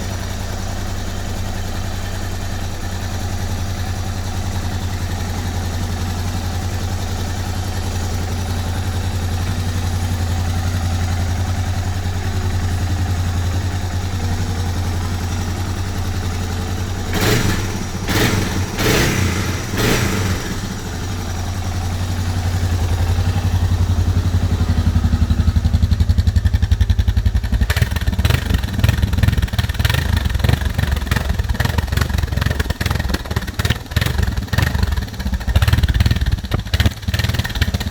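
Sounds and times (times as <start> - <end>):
motorcycle engine idling and revving: 0.0 - 37.9.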